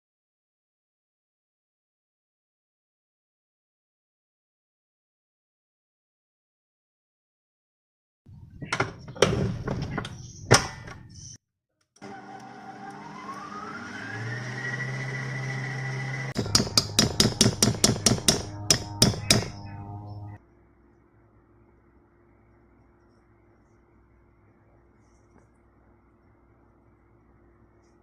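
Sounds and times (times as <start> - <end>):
electric mixer motor whining: 12.0 - 20.4
rapid knocks: 16.4 - 19.6.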